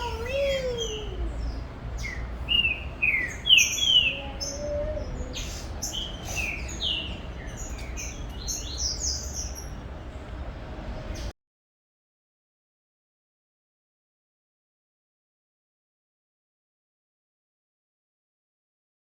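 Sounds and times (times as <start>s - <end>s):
bird whistling song: 0.0s - 9.8s.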